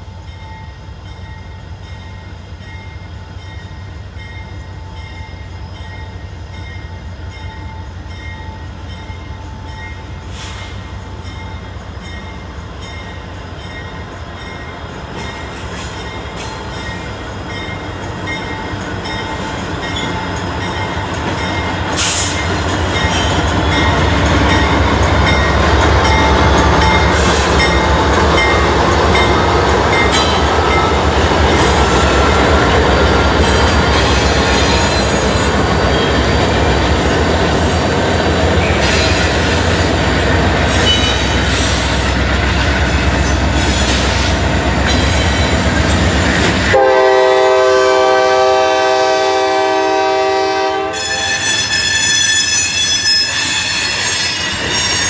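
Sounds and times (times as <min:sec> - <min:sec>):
diesel locomotive engines: 0:00.0 - 0:55.0
steel wheels rumbling and clanking: 0:10.3 - 0:46.9
multi-note train horn: 0:46.7 - 0:53.2.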